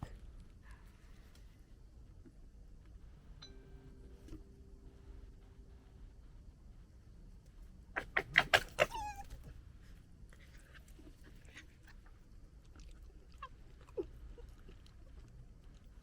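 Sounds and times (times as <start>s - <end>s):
fox squeal: 8.0s - 9.4s
foxes chattering calls: 8.0s - 9.4s.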